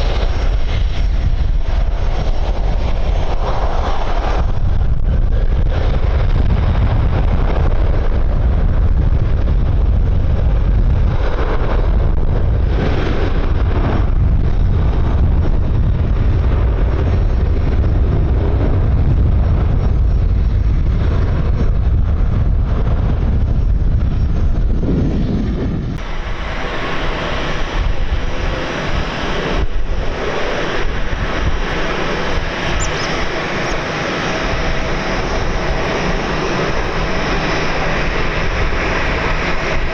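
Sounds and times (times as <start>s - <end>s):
jet engines rumbling: 0.0s - 39.9s
bright jet engine hiss: 26.0s - 39.9s.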